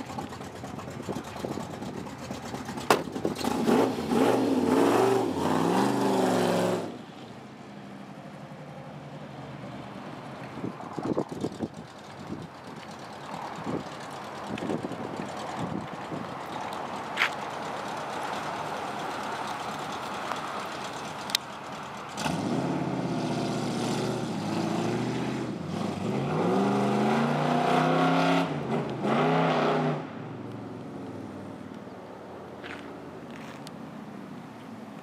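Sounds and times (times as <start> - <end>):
car engine accelerating: 0.0 - 7.0, 11.0 - 31.5.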